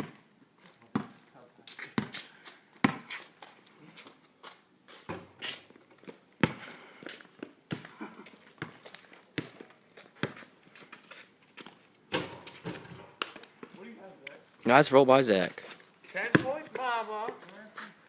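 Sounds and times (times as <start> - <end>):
basketball bouncing on pavement: 0.9 - 1.2, 2.0 - 2.2, 2.8 - 3.2, 5.1 - 5.4, 6.4 - 6.7, 7.7 - 10.4, 12.1 - 13.7, 16.1 - 17.4.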